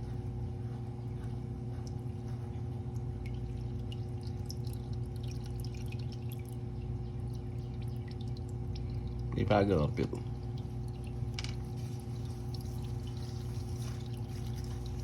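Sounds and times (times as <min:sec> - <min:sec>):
steady low hum: 0:00.0 - 0:15.0
oil dripping into pan: 0:02.9 - 0:09.5.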